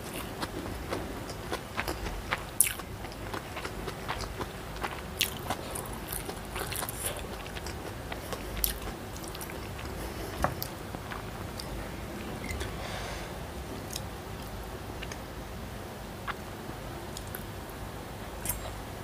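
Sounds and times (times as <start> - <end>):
chewing and wet mouth sounds: 0.0 - 12.7, 13.8 - 15.2, 17.1 - 17.5, 18.4 - 18.8.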